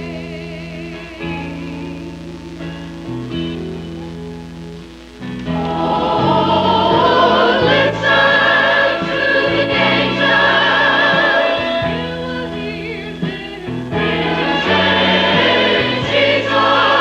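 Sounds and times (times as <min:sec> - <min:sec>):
choir singing with accompaniment: 0:05.4 - 0:17.0.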